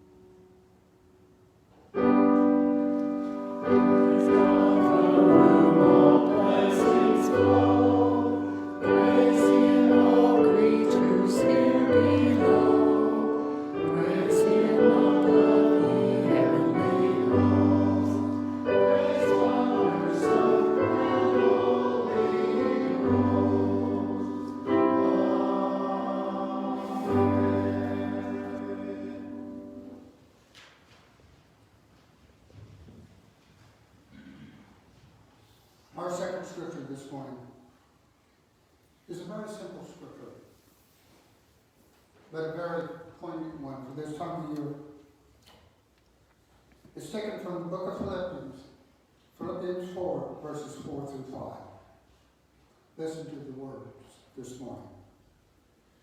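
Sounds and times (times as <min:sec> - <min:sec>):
choir singing: 0:03.4 - 0:30.2.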